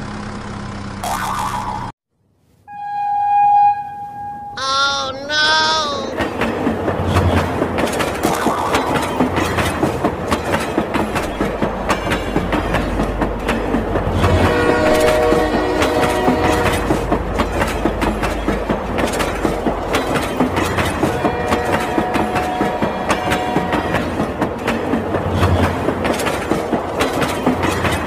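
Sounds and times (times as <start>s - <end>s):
horn-like tones: 2.7s - 6.2s
toy train clickety-clack: 6.2s - 28.0s.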